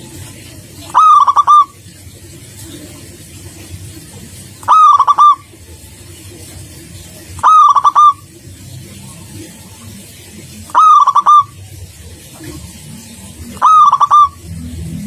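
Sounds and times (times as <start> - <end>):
dove cooing: 0.8 - 1.8, 4.6 - 5.5, 7.4 - 8.3, 10.7 - 11.6, 13.5 - 14.4.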